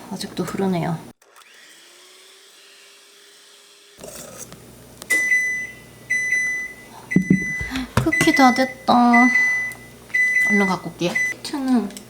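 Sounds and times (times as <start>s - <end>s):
oven timer beeping: 5.1s - 11.4s.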